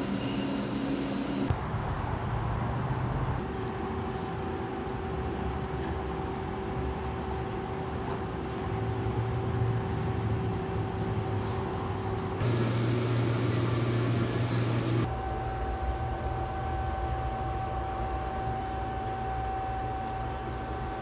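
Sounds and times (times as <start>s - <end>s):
thin steady whine: 0.0s - 1.5s, 12.4s - 21.0s
machine low rumble: 12.0s - 15.1s.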